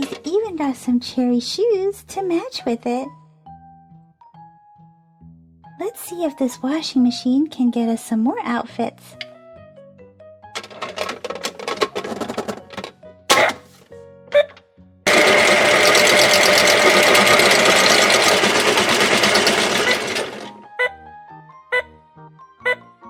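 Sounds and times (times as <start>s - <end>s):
toy washing machine running: 0.0s - 0.2s, 10.6s - 13.6s, 15.1s - 20.6s
toy clicks and rattles: 10.6s - 13.5s, 15.1s - 20.6s.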